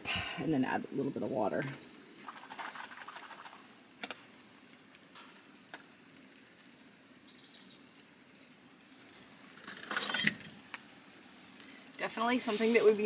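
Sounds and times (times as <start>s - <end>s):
small bird chirping: 6.2s - 7.9s.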